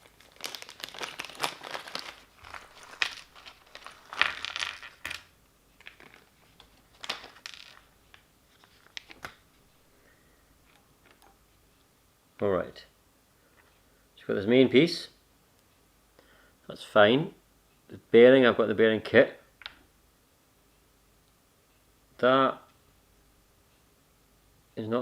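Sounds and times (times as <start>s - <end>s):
hands rustling small parts: 0.0s - 9.4s.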